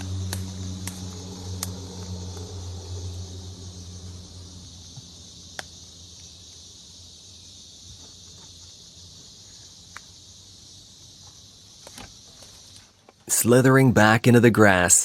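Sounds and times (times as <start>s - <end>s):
low hum: 0.0s - 6.4s
insects chirring: 0.0s - 15.0s.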